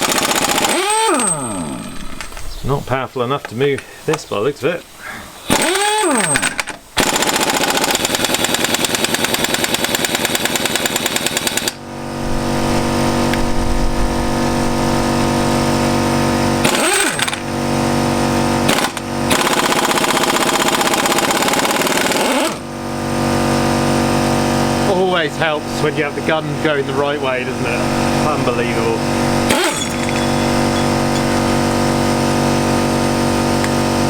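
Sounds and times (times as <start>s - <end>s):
machine drone with low hum: 11.9s - 18.8s, 23.7s - 34.0s.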